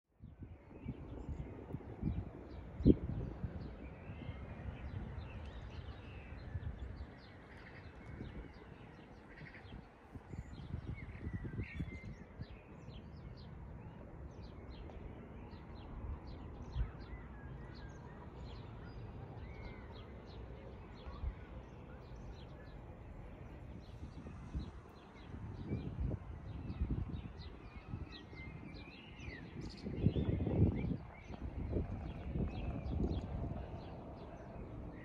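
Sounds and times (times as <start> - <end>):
songbirds chirping and twittering: 0.2 - 35.0
low outdoor rumble: 29.8 - 35.0.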